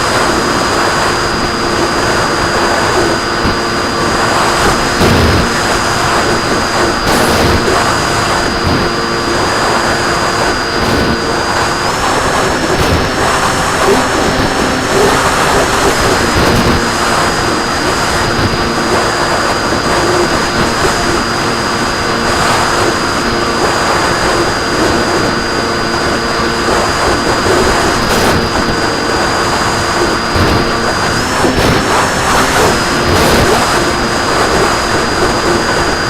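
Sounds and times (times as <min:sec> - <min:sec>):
model plane motor droning: 0:00.0 - 0:36.0
rushing air: 0:00.0 - 0:36.0.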